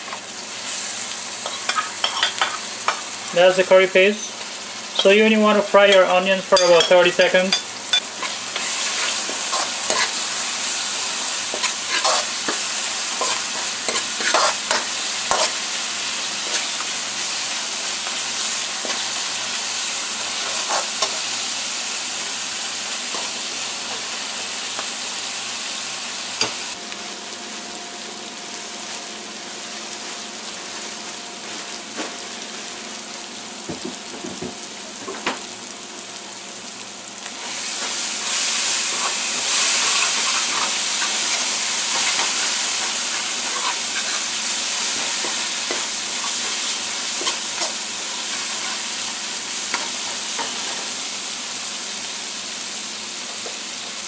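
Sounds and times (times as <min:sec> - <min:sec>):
onions sizzling in hot oil: 0:00.0 - 0:54.0
metal spoon scraping pan: 0:13.2 - 0:15.6.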